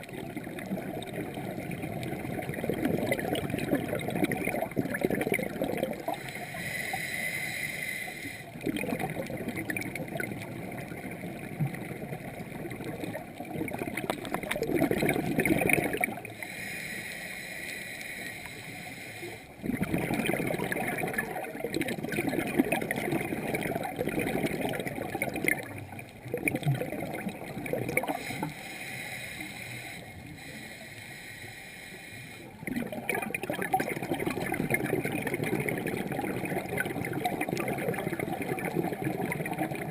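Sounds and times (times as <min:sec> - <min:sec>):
exhaled bubbles gurgling underwater: 0:00.0 - 0:17.4, 0:18.0 - 0:30.8, 0:32.4 - 0:39.9
hissing regulator inhalation: 0:06.1 - 0:08.5, 0:16.3 - 0:19.5, 0:28.0 - 0:32.5.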